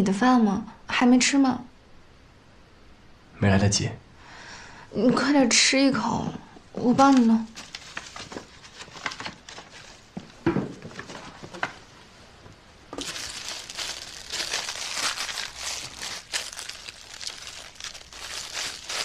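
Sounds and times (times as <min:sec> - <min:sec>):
plastic crinkling and rustling: 0:06.8 - 0:11.9, 0:12.9 - 0:19.0.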